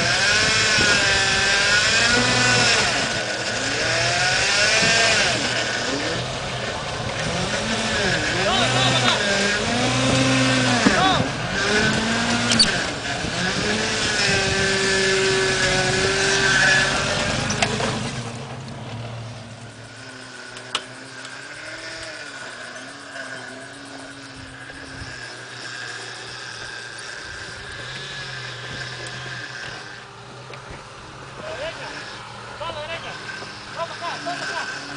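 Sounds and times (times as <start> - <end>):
truck engine running under load: 0.0 - 34.9
sharp click: 12.4 - 12.8.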